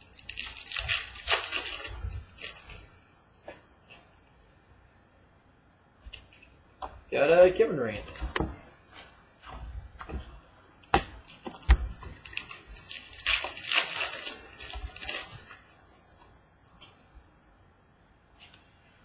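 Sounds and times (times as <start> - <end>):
card packs rustling: 0.0 - 2.9, 11.3 - 15.7.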